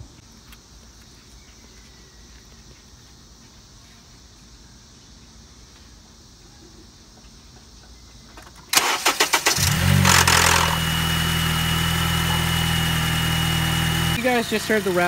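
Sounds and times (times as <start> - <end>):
engine rattle: 8.7 - 15.0
starter cranking: 8.8 - 11.4
car engine idling with whine: 9.6 - 15.0.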